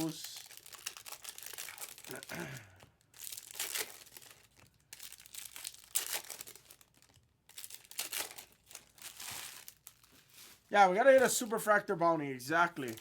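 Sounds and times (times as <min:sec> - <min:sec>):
card pack wrappers crinkling and tearing: 0:00.0 - 0:11.8, 0:12.6 - 0:13.0.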